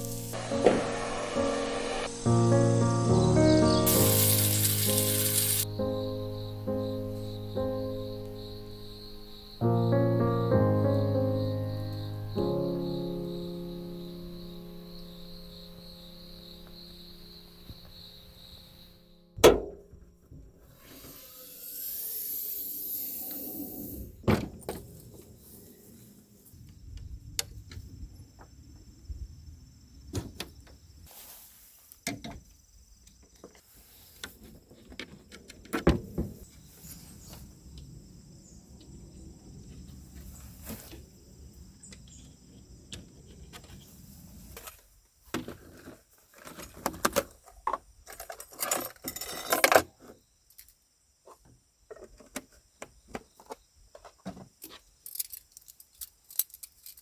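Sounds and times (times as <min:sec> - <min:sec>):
sharp knock: 0:19.4 - 0:20.0.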